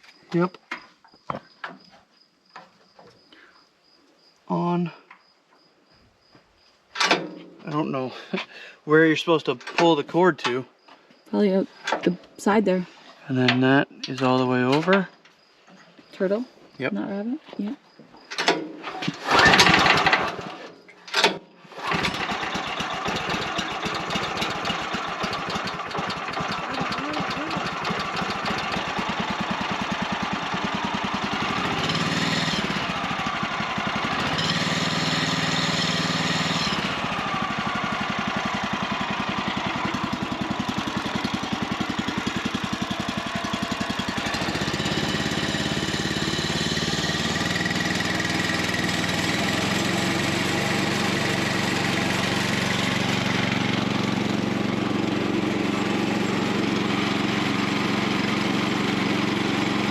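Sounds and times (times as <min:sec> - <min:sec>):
small gasoline engine starting: 0:18.4 - 0:59.9.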